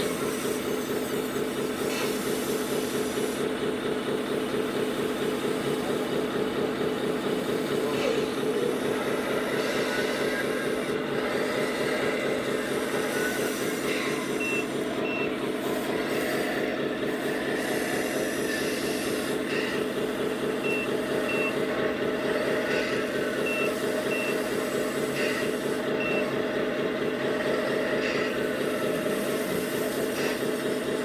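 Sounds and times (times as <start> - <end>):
simulated diesel engine running: 0.0 - 31.0
short high reversing beeps: 14.3 - 15.4, 23.4 - 24.4, 26.0 - 26.3.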